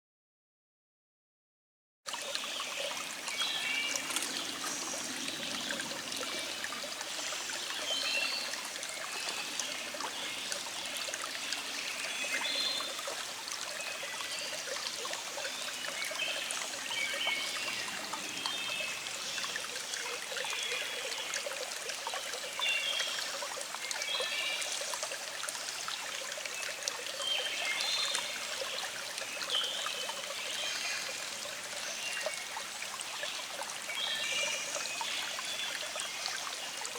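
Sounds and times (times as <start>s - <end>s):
stream trickling and babbling: 2.1s - 36.9s
songbirds chirping: 2.4s - 21.6s.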